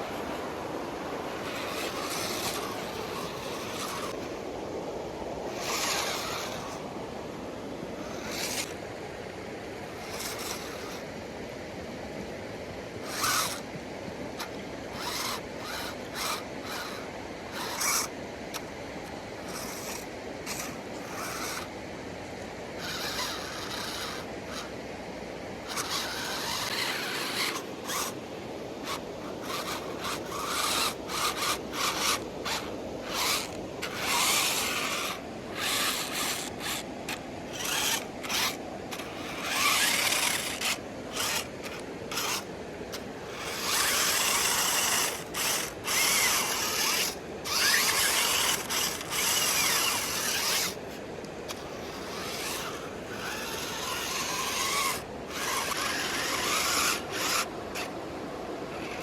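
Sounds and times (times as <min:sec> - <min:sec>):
rc car motors whining: 0:00.0 - 0:59.0
tyres scrabbling over dirt: 0:14.4 - 0:18.7, 0:25.6 - 0:28.2, 0:28.8 - 0:57.9.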